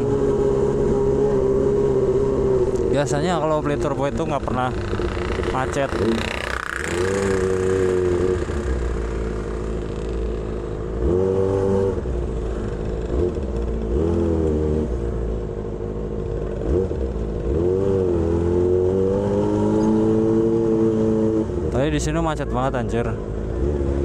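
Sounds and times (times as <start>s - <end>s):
motorcycle engine revving high: 0.0s - 15.3s.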